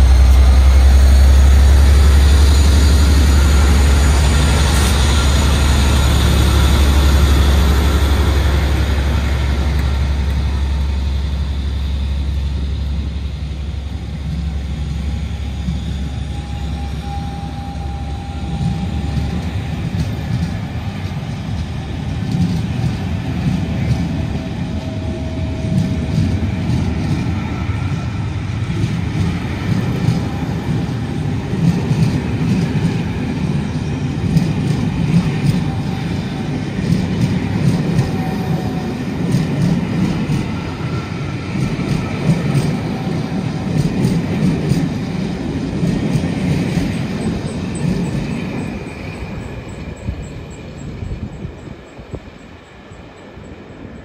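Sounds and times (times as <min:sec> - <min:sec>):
rail-joint clicks: 0:00.0 - 0:13.1, 0:16.4 - 0:54.0
train wheels rumbling on rails: 0:00.0 - 0:54.0.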